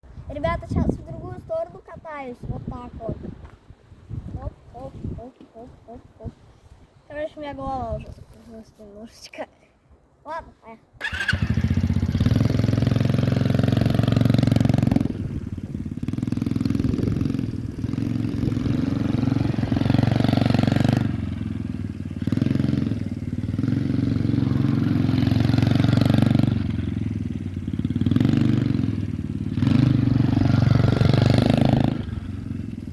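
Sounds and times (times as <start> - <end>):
pit bike engine revving: 11.0 - 32.9.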